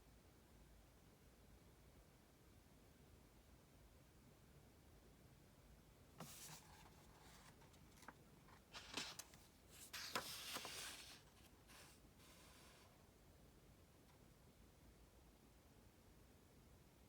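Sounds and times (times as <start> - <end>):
paper rustling: 6.2 - 12.9.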